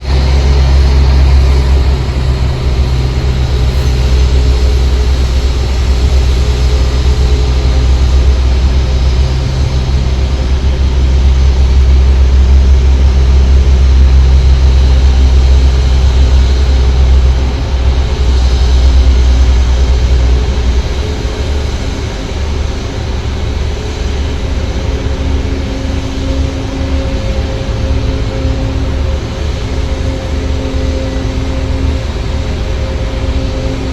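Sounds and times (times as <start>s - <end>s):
jet engines rumbling: 0.0s - 33.9s.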